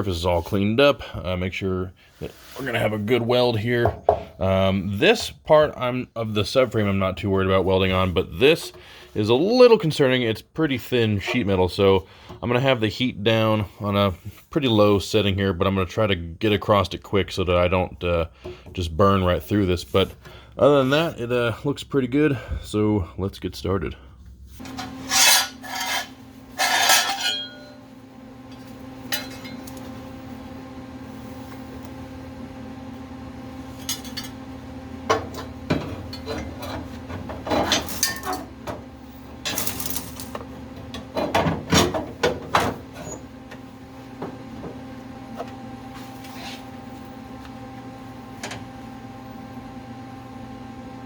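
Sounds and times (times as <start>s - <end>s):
steady electrical hum: 0.0s - 51.0s
metal tools clinking and clattering: 24.7s - 27.8s.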